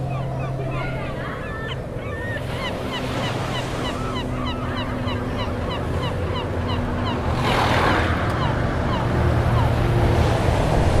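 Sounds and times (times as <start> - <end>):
birds calling: 0.0 - 10.0
sea waves washing: 2.4 - 11.0.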